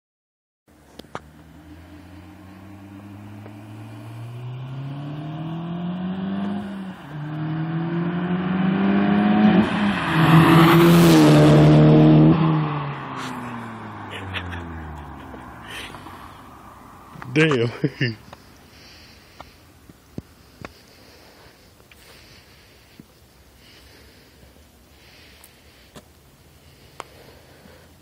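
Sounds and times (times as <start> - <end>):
car engine accelerating hard: 0.9 - 17.5.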